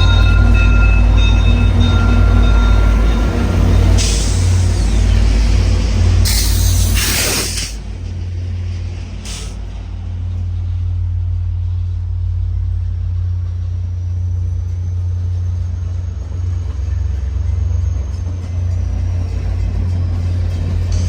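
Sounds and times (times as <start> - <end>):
diesel train rumbling: 0.0 - 21.0
air hiss bursts: 6.2 - 7.8, 9.3 - 9.6.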